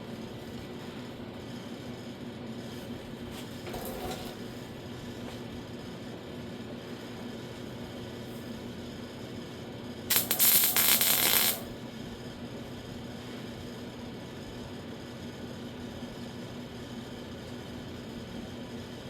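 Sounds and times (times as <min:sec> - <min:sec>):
steady low hum: 0:10.0 - 0:12.1
welding arc crackling: 0:10.1 - 0:11.7.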